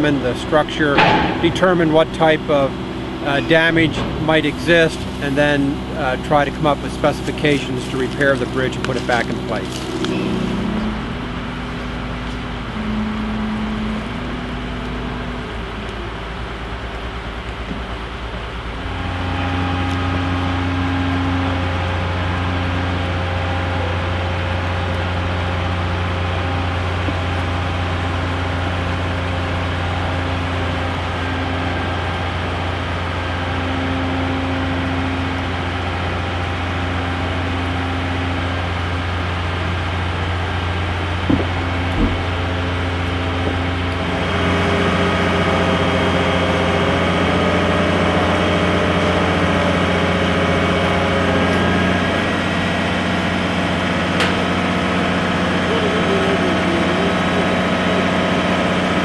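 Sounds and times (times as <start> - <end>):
crane engine humming: 0.0 - 59.0
short knocks: 1.0 - 1.8, 41.2 - 42.6.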